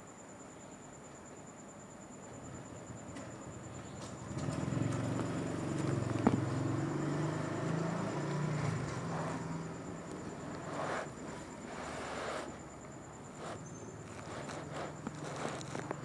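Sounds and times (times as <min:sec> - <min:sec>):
cat purring: 0:13.3 - 0:16.0.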